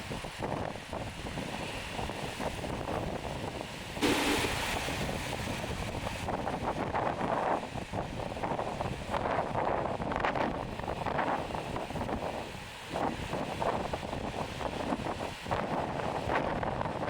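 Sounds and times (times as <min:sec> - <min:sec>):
wind buffeting microphone: 0:00.0 - 0:17.0
surf rushing: 0:04.0 - 0:06.8.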